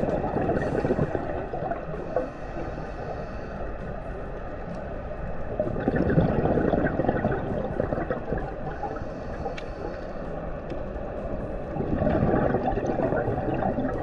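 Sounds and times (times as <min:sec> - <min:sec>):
underwater bubbling: 0:00.0 - 0:14.0
underwater regulator hiss: 0:08.6 - 0:10.3.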